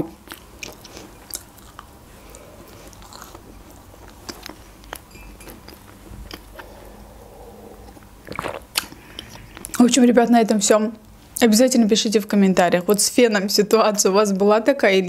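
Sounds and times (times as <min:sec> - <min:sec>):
person chewing cake: 0:00.2 - 0:09.8.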